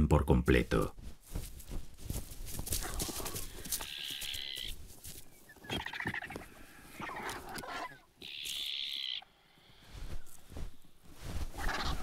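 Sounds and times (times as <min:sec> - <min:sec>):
vultures rasping calls: 0:02.8 - 0:04.8, 0:05.5 - 0:09.3, 0:11.5 - 0:12.0.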